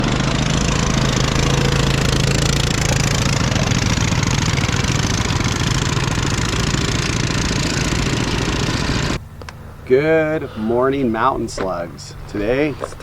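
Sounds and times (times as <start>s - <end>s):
small four-stroke engine running: 0.0s - 9.8s.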